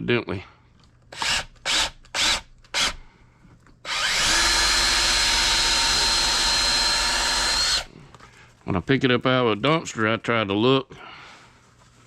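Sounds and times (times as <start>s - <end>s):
wire-stripping machine whining: 3.9s - 7.9s.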